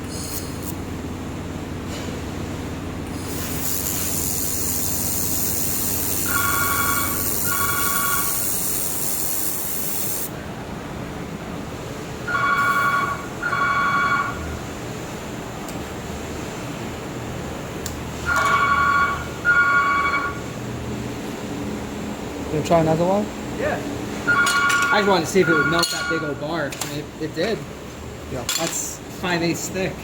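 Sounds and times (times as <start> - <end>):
laser welder hissing: 0.0 - 0.8, 3.1 - 10.3
two-note electronic beeps: 24.3 - 26.3.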